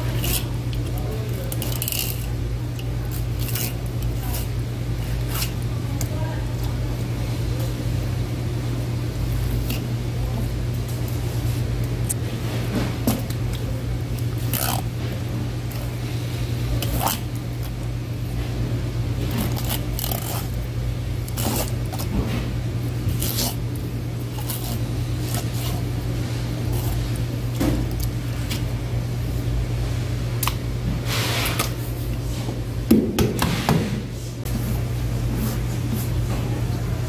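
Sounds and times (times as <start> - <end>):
knife scraping fish: 0.0 - 2.4, 3.0 - 5.6, 16.7 - 17.7, 19.3 - 20.6, 21.2 - 22.1, 23.0 - 23.6, 24.2 - 26.0, 26.6 - 27.1
steady low hum: 0.0 - 37.0.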